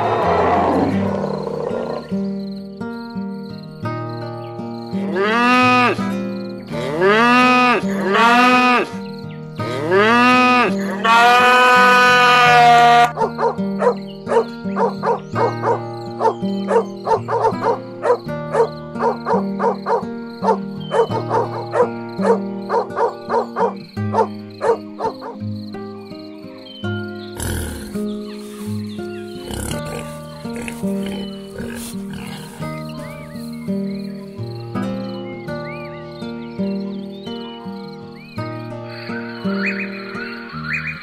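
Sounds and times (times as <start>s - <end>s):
background music with plucked notes: 0.9s - 41.0s
animal calls rising and falling: 27.4s - 33.4s.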